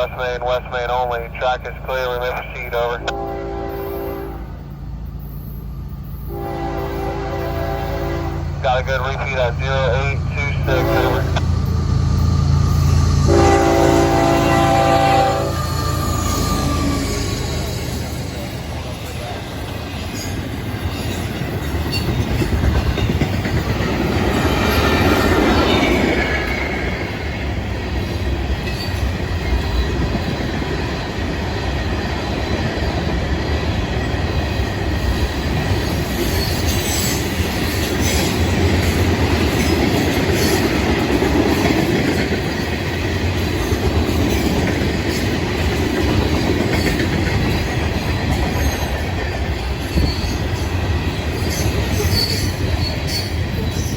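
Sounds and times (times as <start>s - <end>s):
freight train wheels rumbling: 0.0s - 53.9s
high wheel squeal: 10.8s - 21.2s, 51.3s - 53.9s
wheels clacking over rail joints: 16.2s - 27.1s, 27.7s - 53.9s.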